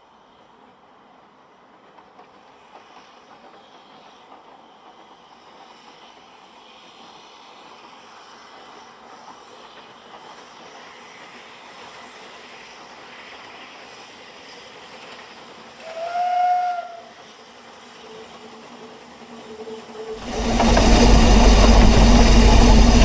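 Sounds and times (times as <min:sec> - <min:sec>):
approaching train: 0:00.1 - 0:23.0
steam locomotive whistle: 0:15.8 - 0:17.3.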